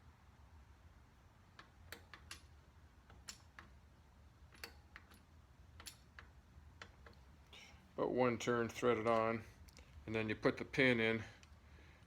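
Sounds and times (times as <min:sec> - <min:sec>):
small metal parts clicking: 0:01.6 - 0:03.8, 0:04.5 - 0:07.2.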